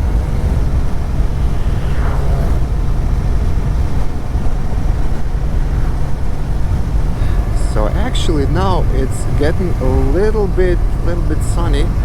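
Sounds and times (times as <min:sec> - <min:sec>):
motorcycle engine rumble: 0:00.0 - 0:12.0
wind buffeting microphone: 0:00.0 - 0:12.0.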